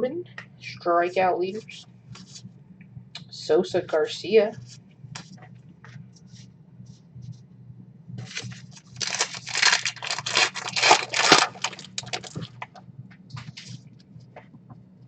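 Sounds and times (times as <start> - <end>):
wrapper tearing and crinkling: 8.2 - 12.7.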